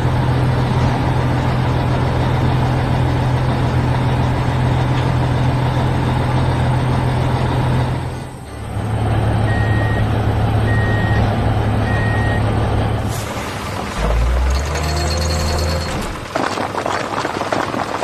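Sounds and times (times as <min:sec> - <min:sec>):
heavy vehicle engine humming: 0:00.0 - 0:17.2.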